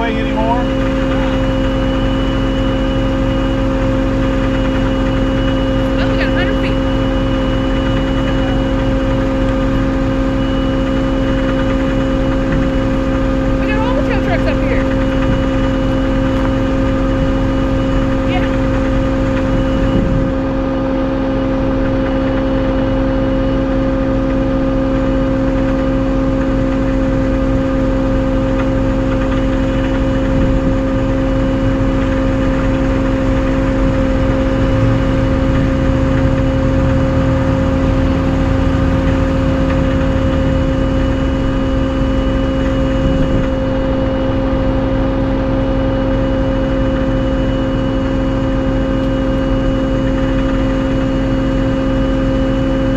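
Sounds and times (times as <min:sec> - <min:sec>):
truck engine rumble: 0:00.0 - 0:52.9
winch whine: 0:00.0 - 0:52.9.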